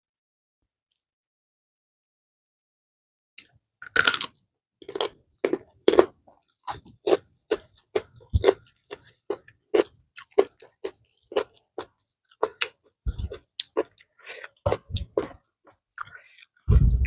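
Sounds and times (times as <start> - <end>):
crunchy chewing of greens: 3.8 - 17.0.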